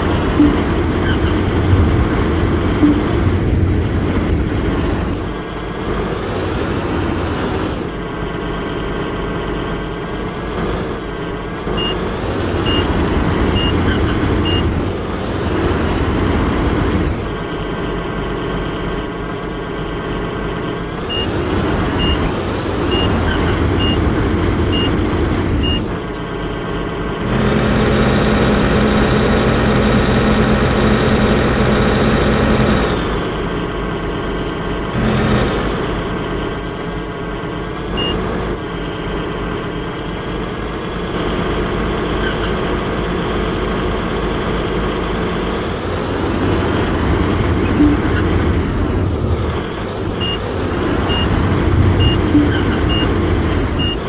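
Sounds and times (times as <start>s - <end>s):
warning alarm beeping: 0.0s - 6.2s, 11.6s - 15.9s, 21.0s - 24.1s, 37.7s - 38.6s, 39.8s - 54.0s
excavator engine running: 0.0s - 54.0s.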